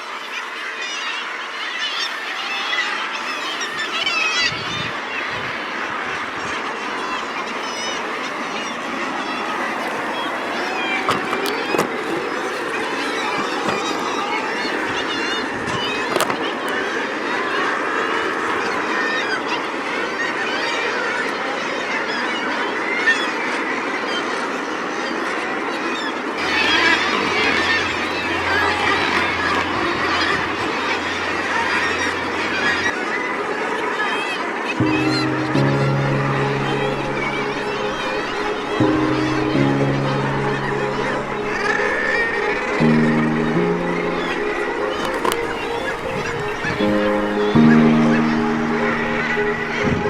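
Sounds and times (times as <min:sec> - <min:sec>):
seabird colony calling: 0:00.0 - 0:23.4, 0:26.1 - 0:33.2, 0:33.8 - 0:50.0.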